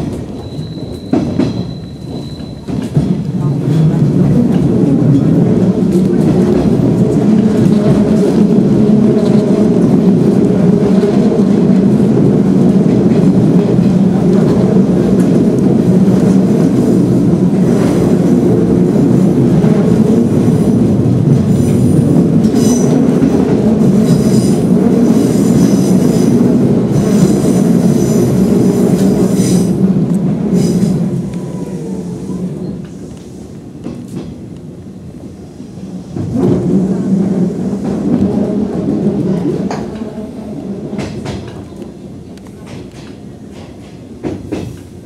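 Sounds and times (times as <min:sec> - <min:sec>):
train motors and wheels rumbling: 0:00.0 - 0:45.0
train wheels squealing: 0:00.3 - 0:03.0.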